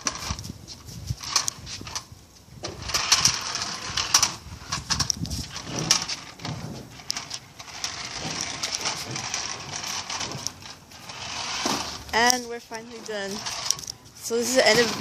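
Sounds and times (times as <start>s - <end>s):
toy car motor whirring: 0.0s - 15.0s
clatter and knocks: 2.6s - 12.1s.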